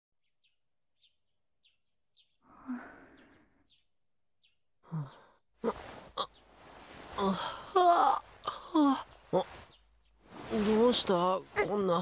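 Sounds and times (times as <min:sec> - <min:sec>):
small birds chirping: 0:00.2 - 0:12.0
breathy sigh: 0:02.4 - 0:03.6, 0:07.2 - 0:07.8
breathy vocal sound: 0:07.1 - 0:09.7.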